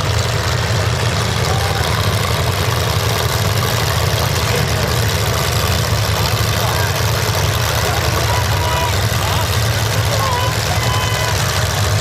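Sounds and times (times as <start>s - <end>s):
car engines rumbling: 0.0s - 12.0s.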